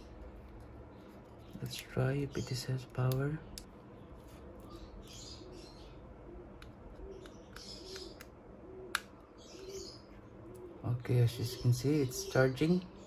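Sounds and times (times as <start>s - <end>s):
bird cooing: 4.6s - 11.6s.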